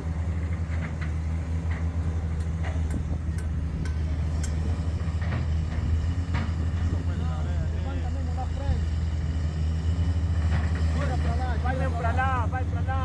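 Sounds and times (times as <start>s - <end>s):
heavy machinery engine running: 0.0s - 13.0s
light metallic clinks and knocks: 2.3s - 5.8s.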